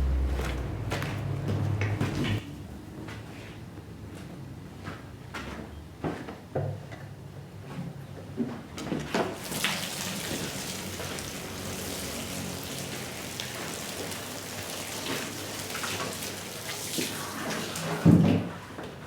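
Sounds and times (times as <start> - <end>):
water spraying onto a soaked rug: 9.3 - 18.6.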